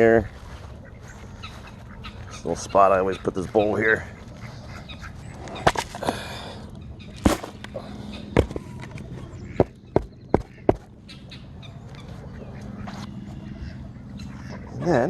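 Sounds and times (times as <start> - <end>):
faint poultry flock: 0.0 - 15.0
sharp knocks: 9.6 - 10.9.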